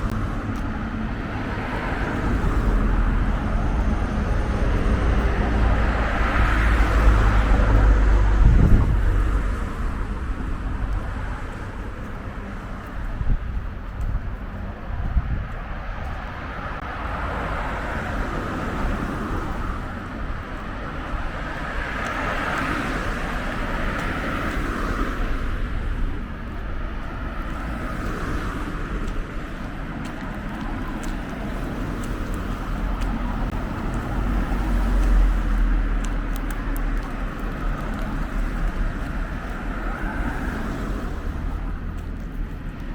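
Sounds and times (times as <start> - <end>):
deep rumble: 0.0 - 15.7
road traffic passing: 0.0 - 42.9.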